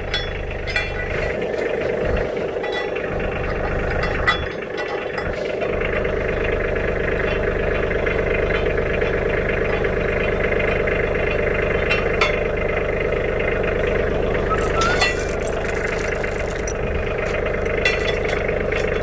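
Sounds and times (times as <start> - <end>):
tractor engine running: 0.0 - 19.0
metallic clicks and rattles: 14.4 - 19.0.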